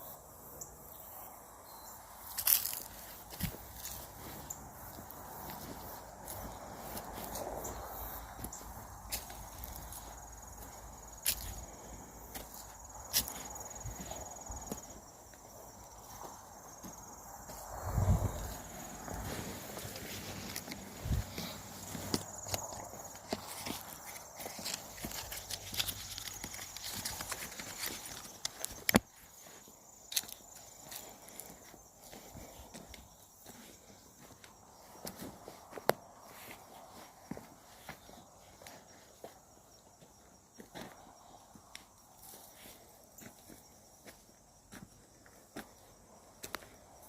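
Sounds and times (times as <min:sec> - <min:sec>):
insects trilling: 0:00.0 - 0:47.0
footsteps on woodland floor: 0:02.3 - 0:46.8
footsteps through leaf litter: 0:02.4 - 0:08.4, 0:18.0 - 0:28.4
sharp crack underfoot: 0:19.1 - 0:29.2
twigs snapping: 0:22.1 - 0:29.1.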